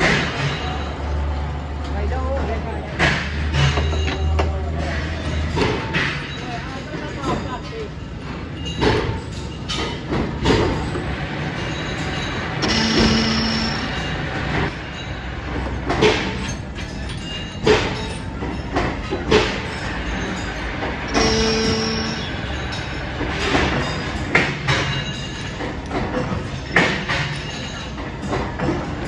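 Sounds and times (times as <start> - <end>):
metalworking machinery running: 8.2 - 29.0
sharp metal clanks: 11.6 - 15.1, 15.9 - 28.9
steady machine whine: 12.6 - 14.8, 21.1 - 23.0.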